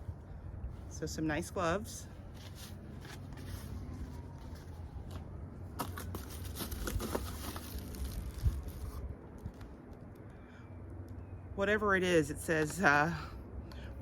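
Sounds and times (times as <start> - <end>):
packaging rustling and crinkling: 5.8 - 9.7.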